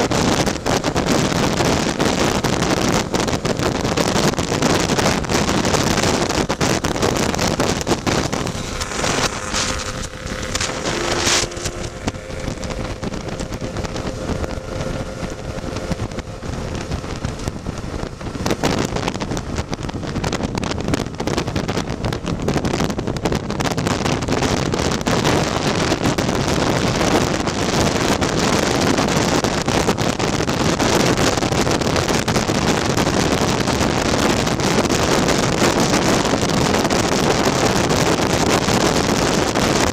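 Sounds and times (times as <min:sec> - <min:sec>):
scooter engine running: 0:00.0 - 0:23.6
wind buffeting microphone: 0:00.0 - 0:39.9.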